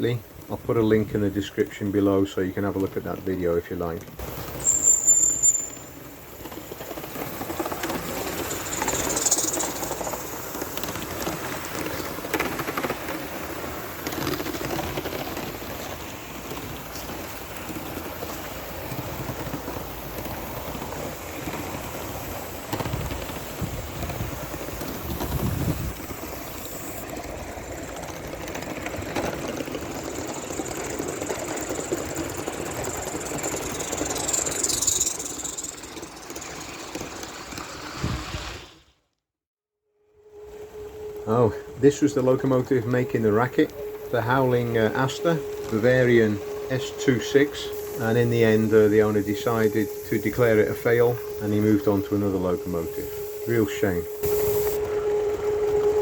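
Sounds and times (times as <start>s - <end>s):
model steam locomotive hissing: 0.0s - 38.8s, 40.4s - 56.0s.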